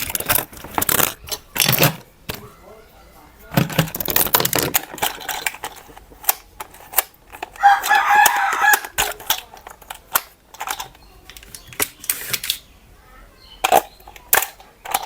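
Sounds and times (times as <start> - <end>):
rooster crowing: 7.6 - 9.0.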